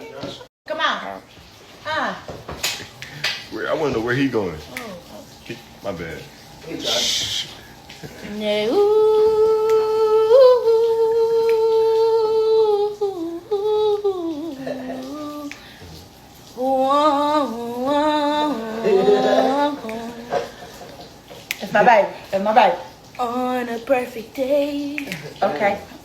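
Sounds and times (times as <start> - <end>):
boy singing without words: 8.2 - 15.8, 16.6 - 20.5, 23.2 - 25.4.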